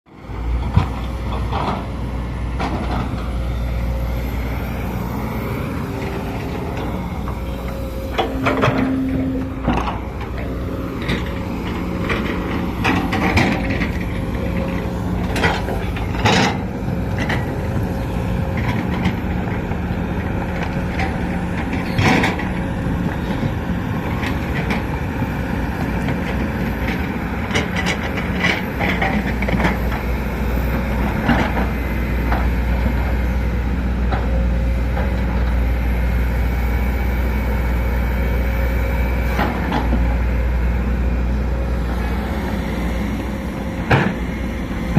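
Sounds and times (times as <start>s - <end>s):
excavator diesel engine running: 0.1s - 44.9s
clanks and knocks: 6.7s - 19.2s, 43.8s - 44.4s.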